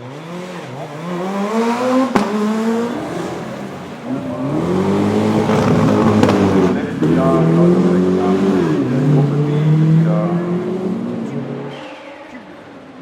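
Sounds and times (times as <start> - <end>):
rally car engine revving: 0.0 - 13.0
sharp crack: 2.0 - 4.0, 5.4 - 7.0.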